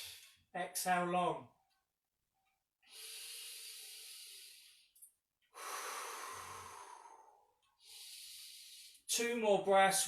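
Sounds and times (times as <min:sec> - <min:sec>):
person breathing deeply: 0:00.0 - 0:00.4, 0:02.8 - 0:04.9, 0:05.5 - 0:09.1.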